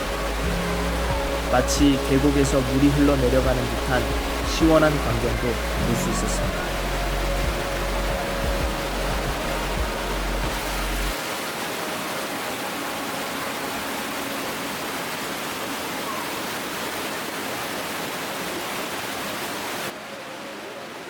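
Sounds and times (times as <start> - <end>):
water cascading in a cave: 0.0 - 21.0.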